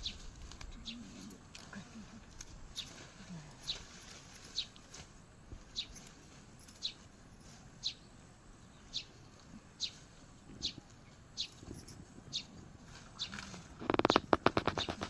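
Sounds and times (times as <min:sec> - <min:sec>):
bird chirping: 0:00.0 - 0:01.4, 0:05.7 - 0:15.0.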